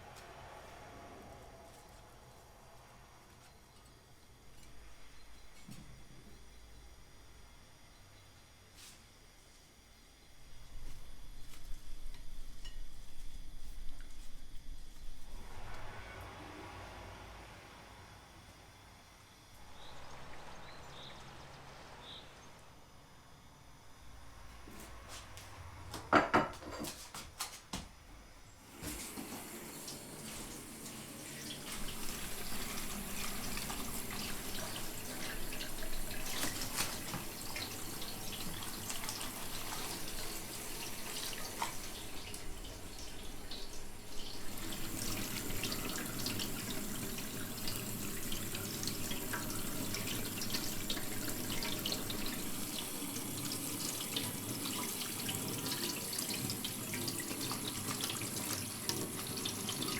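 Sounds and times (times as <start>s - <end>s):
water running: 28.6s - 59.9s.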